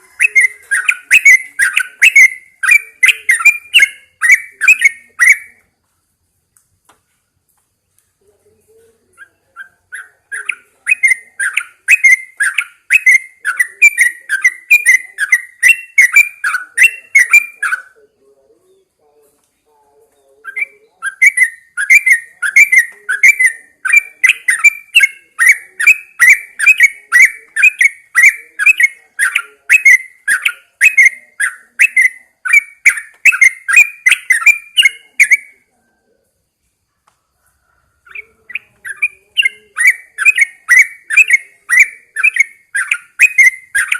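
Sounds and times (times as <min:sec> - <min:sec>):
bird singing quick chirping notes: 0:00.0 - 0:05.6.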